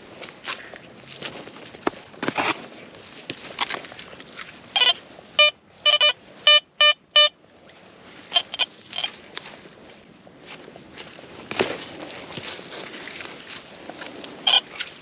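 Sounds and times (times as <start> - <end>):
footsteps in grass: 0.0 - 5.4, 7.6 - 15.0
metal detector beeps: 4.8 - 7.4, 8.3 - 9.1, 14.4 - 14.7.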